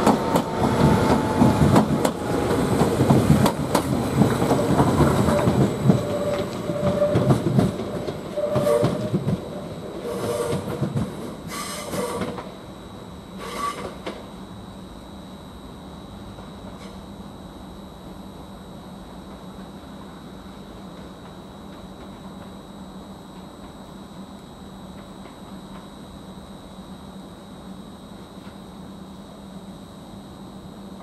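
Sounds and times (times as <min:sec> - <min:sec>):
train rumble: 0:00.0 - 0:14.5.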